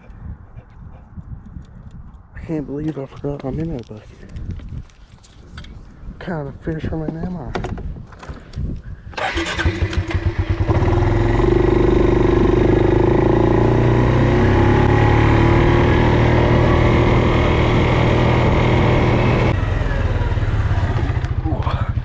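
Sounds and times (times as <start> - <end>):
small engine starting and running: 9.1 - 21.5.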